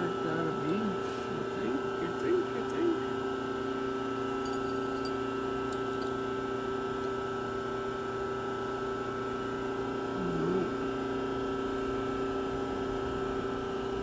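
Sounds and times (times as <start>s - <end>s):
electric motor humming: 0.0s - 3.1s, 10.0s - 13.8s.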